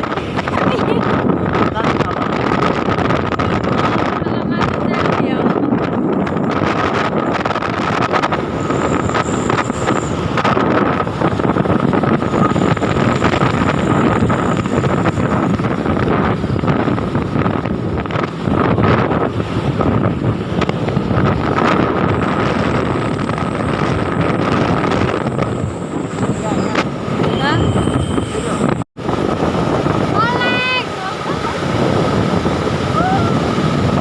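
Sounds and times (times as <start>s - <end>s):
truck engine and road noise: 0.0s - 34.0s
wind buffeting microphone: 0.0s - 34.0s
thin steady whine: 8.2s - 15.8s.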